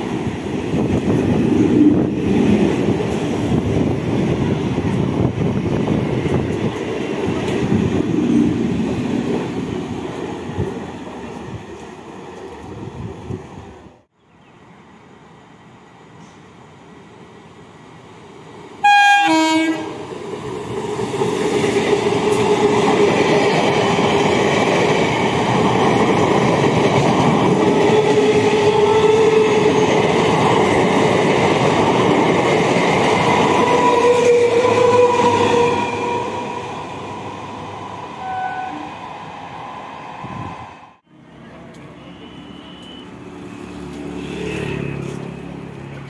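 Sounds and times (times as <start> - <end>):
train rushing past: 0.0 - 14.1, 16.2 - 46.0
train horn blast: 18.8 - 20.0, 38.2 - 38.9, 41.9 - 43.1.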